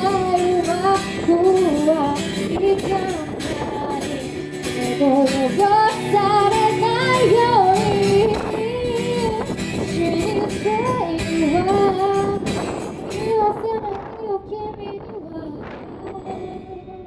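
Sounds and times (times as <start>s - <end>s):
woman singing: 0.0s - 17.0s.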